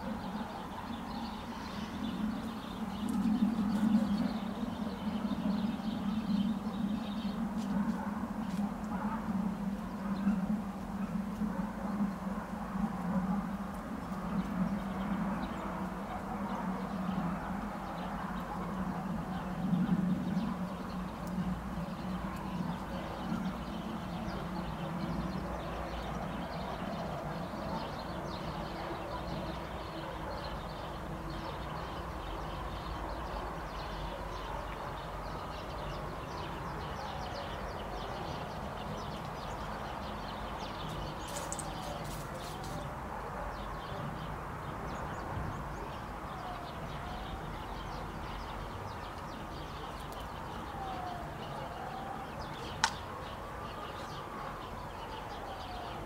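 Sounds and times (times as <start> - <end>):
birds chirping and calling: 0.0 - 12.2, 17.8 - 42.9
steady low background noise: 0.0 - 56.0.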